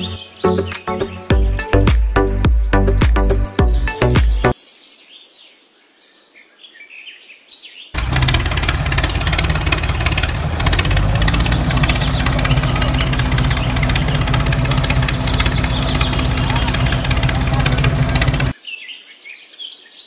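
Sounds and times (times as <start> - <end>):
birds chirping: 0.0 - 20.0
tractor engine chugging: 8.0 - 18.5.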